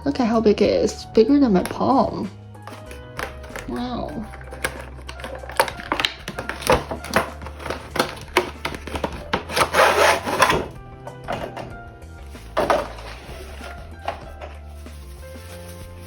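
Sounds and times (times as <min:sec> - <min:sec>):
quiet background music: 0:00.0 - 0:16.0
fabric pouch rustling: 0:02.6 - 0:10.6, 0:12.2 - 0:16.0.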